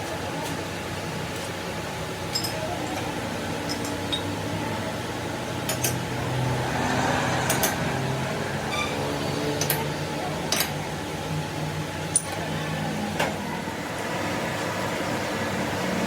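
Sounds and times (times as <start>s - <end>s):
workshop machinery humming: 0.0s - 16.0s.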